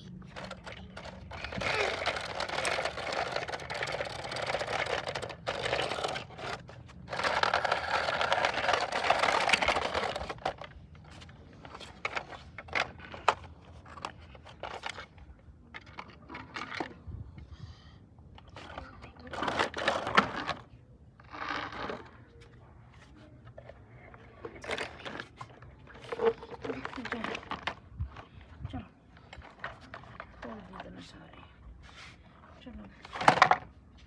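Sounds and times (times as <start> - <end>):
toy vehicles scraping on surface: 0.3 - 15.0, 18.6 - 23.8.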